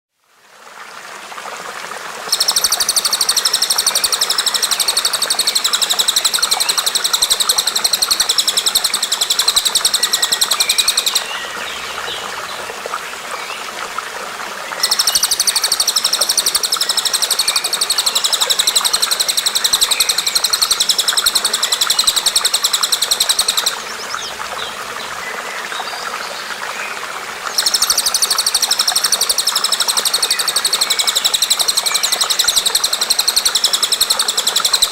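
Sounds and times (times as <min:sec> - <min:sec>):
songbird trilling: 0:02.3 - 0:12.1, 0:14.8 - 0:24.7, 0:27.5 - 0:34.9.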